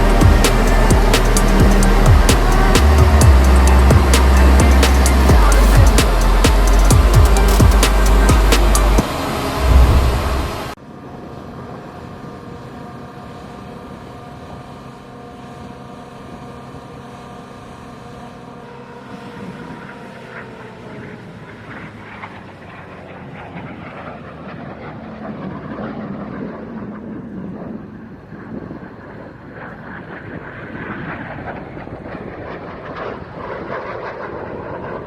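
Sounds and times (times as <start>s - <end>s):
music bed: 0.0s - 9.0s
jet engines whining: 0.0s - 10.8s.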